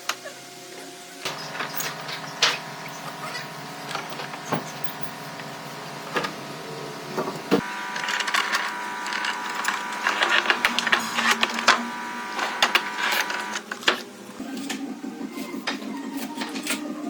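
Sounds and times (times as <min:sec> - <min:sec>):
machine hum: 0:01.2 - 0:14.6.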